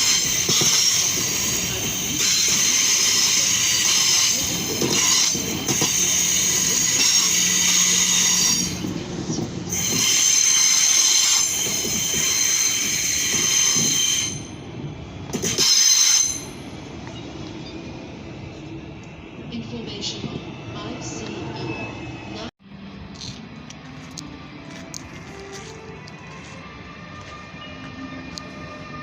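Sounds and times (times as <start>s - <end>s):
train wheels squealing: 0.0s - 14.7s, 15.3s - 18.3s
low train rumble: 0.0s - 29.0s.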